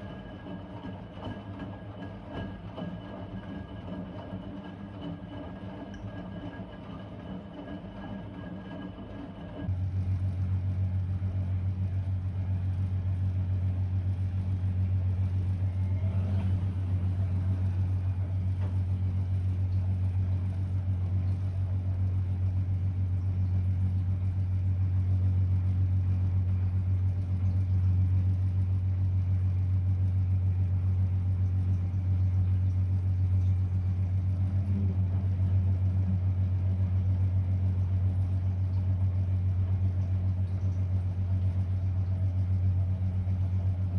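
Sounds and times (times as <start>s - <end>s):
washing machine humming: 0.0s - 43.9s.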